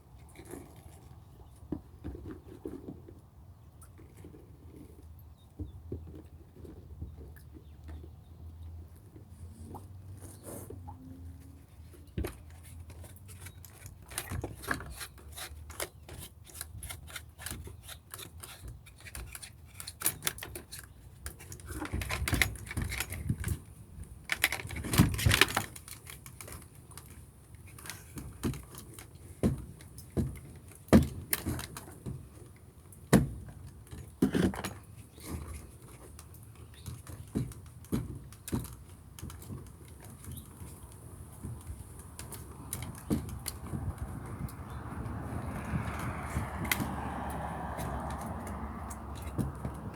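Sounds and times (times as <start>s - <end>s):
plastic rubbing or scraping: 9.6s - 23.5s
plastic parts clicking and rattling: 12.1s - 44.7s.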